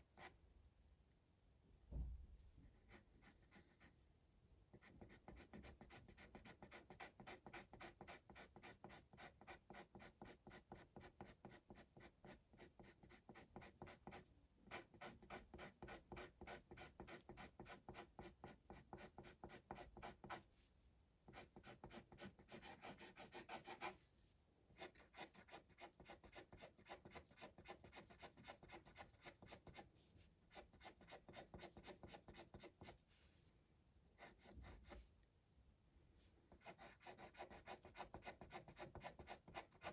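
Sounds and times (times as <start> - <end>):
pencil shading on paper: 4.7 - 20.4, 21.3 - 24.0, 24.8 - 29.9, 30.5 - 33.0, 34.2 - 35.0, 36.5 - 39.9.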